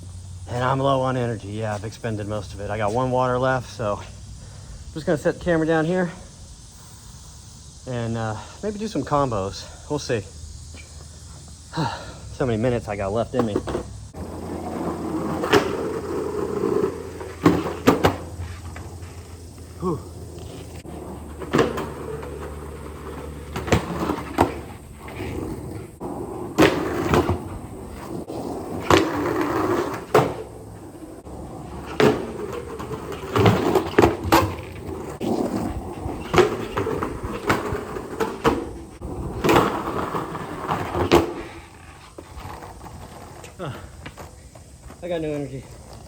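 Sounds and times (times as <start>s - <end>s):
skateboard wheels rumbling on concrete: 0.0s - 46.0s
skateboard clacking on ground: 12.6s - 46.0s.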